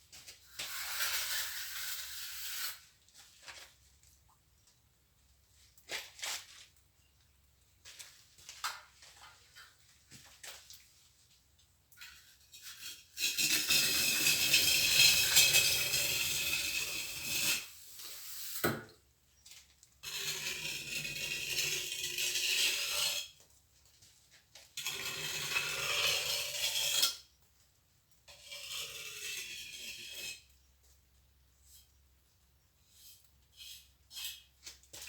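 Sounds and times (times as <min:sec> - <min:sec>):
trowel scraping mortar: 0:00.2 - 0:02.9, 0:12.0 - 0:18.7, 0:20.0 - 0:23.4, 0:24.8 - 0:27.2, 0:28.3 - 0:30.5, 0:32.9 - 0:35.0.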